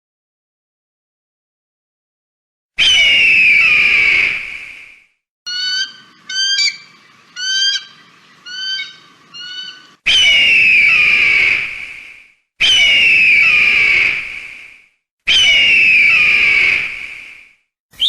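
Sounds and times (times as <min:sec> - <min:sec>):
hawk screaming: 0:02.8 - 0:04.4, 0:05.5 - 0:11.7, 0:12.6 - 0:14.2.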